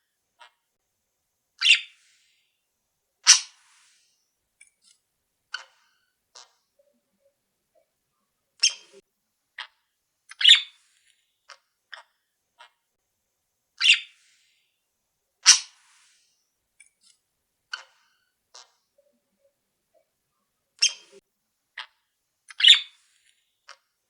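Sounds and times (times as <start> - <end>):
pet birds sharp calls: 1.6 - 1.9, 3.3 - 3.6, 10.3 - 10.7, 13.8 - 14.1, 15.4 - 15.8, 22.5 - 23.0.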